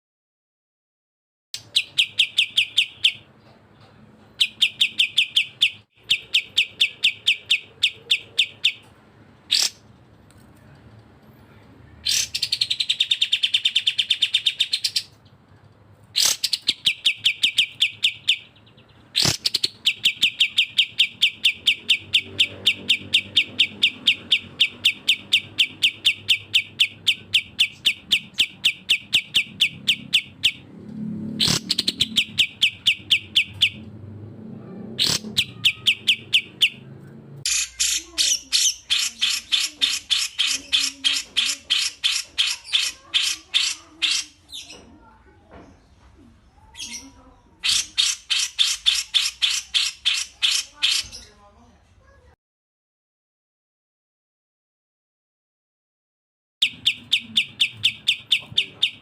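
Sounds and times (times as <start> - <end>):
bird rapid high chattering: 1.6 - 3.4, 4.3 - 8.9, 9.5 - 9.9, 12.0 - 15.2, 16.1 - 30.7, 31.3 - 33.9, 34.9 - 44.8, 46.7 - 51.3, 56.6 - 59.0
sharp bird calls: 1.6 - 3.4, 4.3 - 8.9, 9.5 - 9.9, 12.0 - 15.2, 16.1 - 30.7, 31.3 - 33.9, 35.0 - 44.9, 46.5 - 51.4, 56.6 - 59.0.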